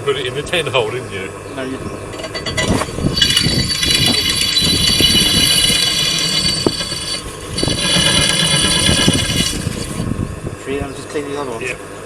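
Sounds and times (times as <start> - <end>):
light clattering: 2.1 - 10.1
power tool whining: 2.2 - 10.1.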